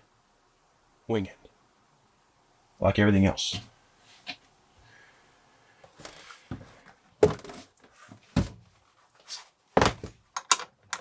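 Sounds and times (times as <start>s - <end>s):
objects knocking and thumping: 5.9s - 8.7s, 9.8s - 11.0s.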